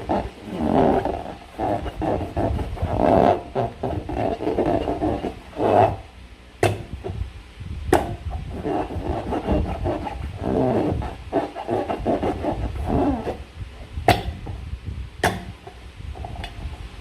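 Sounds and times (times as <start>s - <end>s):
rubbery balloon squeaks: 0.0s - 7.2s, 8.0s - 13.5s.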